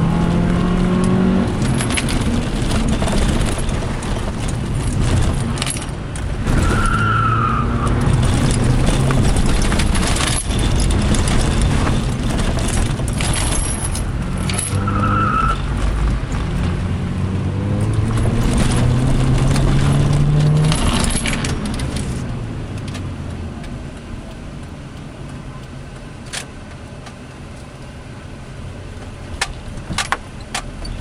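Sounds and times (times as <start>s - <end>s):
car engine revving: 0.0s - 24.4s
clicks or rattles: 1.0s - 7.0s, 7.9s - 16.8s, 17.8s - 23.1s.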